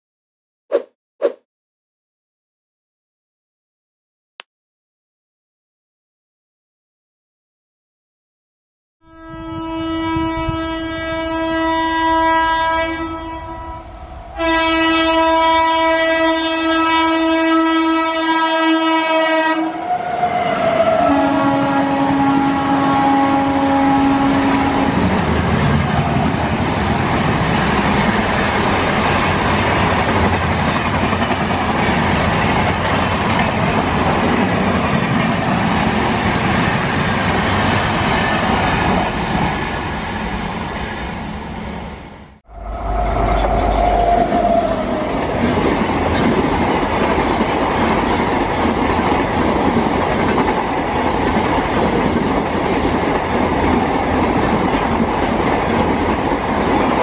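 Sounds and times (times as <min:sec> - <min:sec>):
locomotive horn: 0:09.0 - 0:25.0, 0:42.5 - 0:45.2
train coaches passing at speed: 0:09.3 - 0:57.0.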